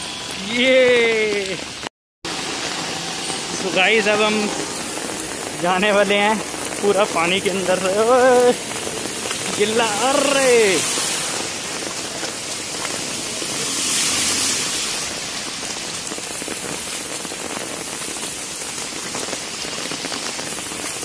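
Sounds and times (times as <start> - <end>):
heavy rain splashing into water: 0.0 - 21.0.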